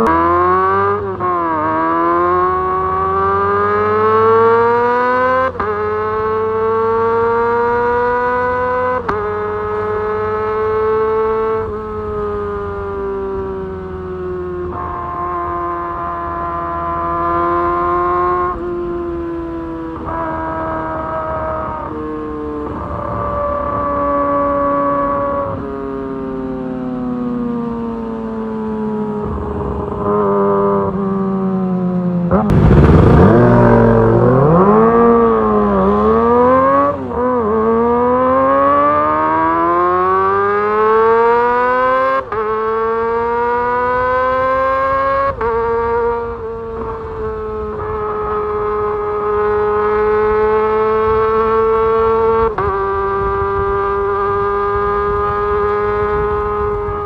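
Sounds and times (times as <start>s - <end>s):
motorcycle engine revving: 0.0s - 57.0s
loud engine burst: 32.4s - 35.6s.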